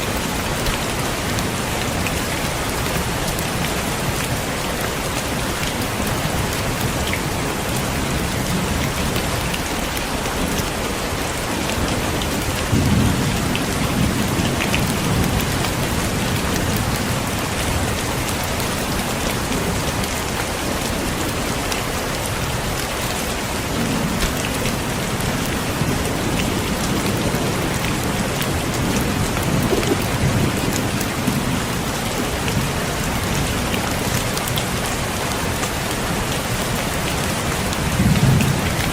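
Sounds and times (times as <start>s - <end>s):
heavy rain: 0.0s - 38.9s
thunder rolling: 25.8s - 31.8s.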